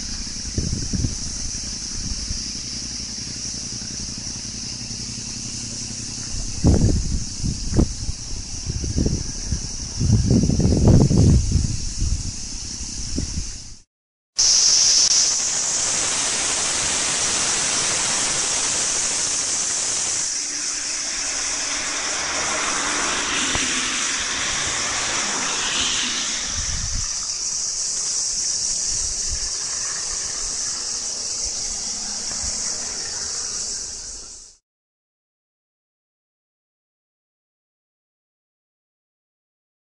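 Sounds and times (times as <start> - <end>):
heavy rain on flooded road: 14.8 - 20.8.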